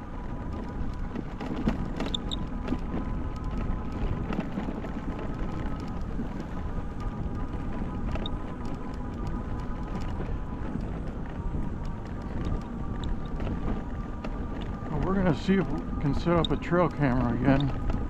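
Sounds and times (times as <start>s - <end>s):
faint motor whine: 0.0s - 18.0s
small clicks from the track: 0.0s - 18.0s
tyre and wind rumble: 0.0s - 18.0s.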